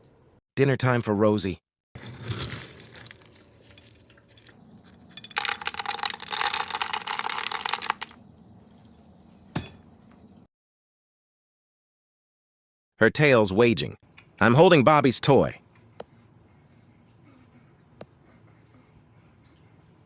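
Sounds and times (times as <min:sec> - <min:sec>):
dry kibble poured into bowl: 0:02.0 - 0:03.5, 0:05.3 - 0:08.2.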